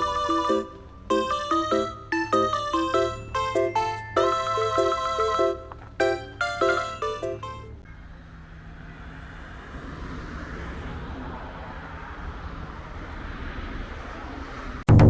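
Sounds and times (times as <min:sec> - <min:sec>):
vehicle running: 0:00.0 - 0:07.8.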